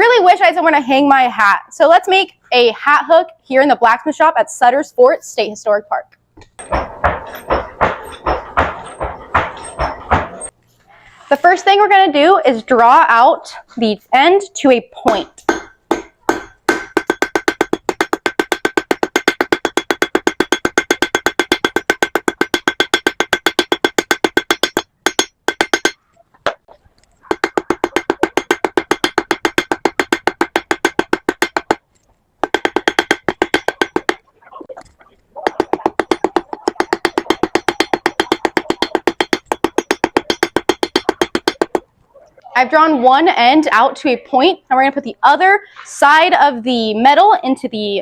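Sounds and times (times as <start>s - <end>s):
hammer striking iron on anvil: 6.5s - 10.5s, 15.1s - 26.6s, 27.2s - 31.8s, 32.4s - 34.2s, 35.4s - 41.9s.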